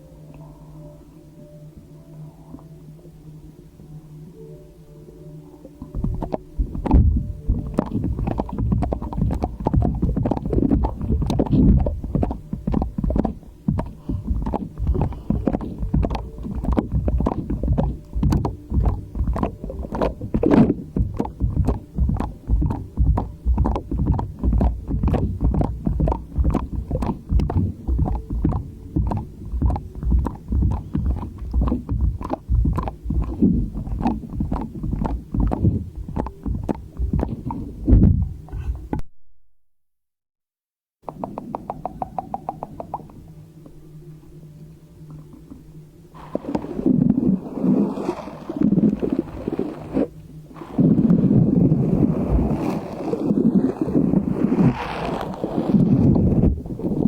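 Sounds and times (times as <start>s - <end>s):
slime squelching and popping: 6.0s - 38.3s.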